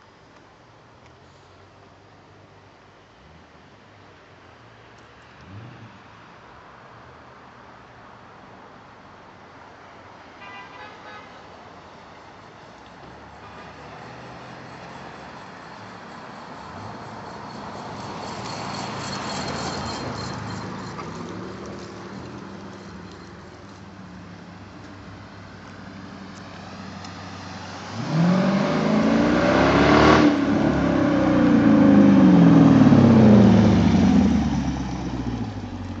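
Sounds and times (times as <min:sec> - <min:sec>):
car engine accelerating: 0:25.7 - 0:36.0.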